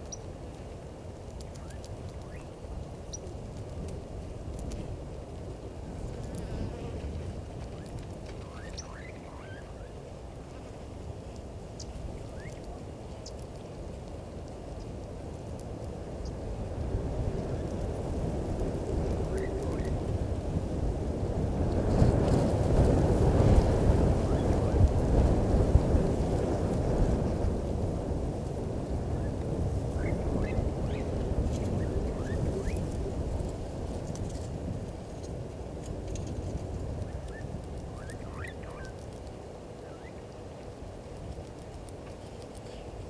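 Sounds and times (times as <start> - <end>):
steady low rumble: 0.0 - 43.0
wind buffeting microphone: 0.0 - 43.0
bird chirps: 8.4 - 9.7, 38.0 - 38.9.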